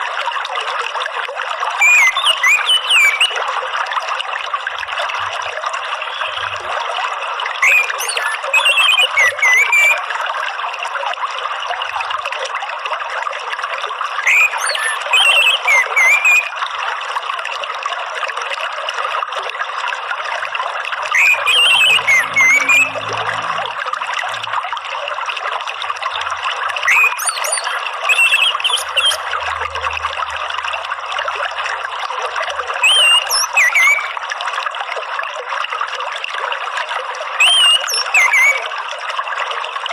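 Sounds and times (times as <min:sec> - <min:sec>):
running water: 0:00.0 - 0:39.9
songbird whistling: 0:01.8 - 0:03.4, 0:07.6 - 0:10.1, 0:14.2 - 0:16.5, 0:21.1 - 0:23.1, 0:26.8 - 0:29.3, 0:32.8 - 0:34.2, 0:37.4 - 0:38.7.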